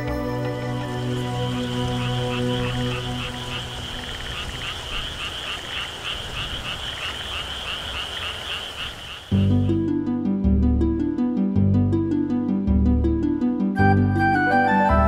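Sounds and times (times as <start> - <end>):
frogs croaking in chorus: 0.7 - 9.7.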